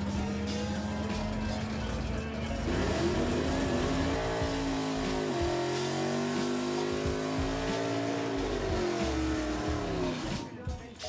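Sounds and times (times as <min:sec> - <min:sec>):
race car engines revving: 0:00.0 - 0:10.5.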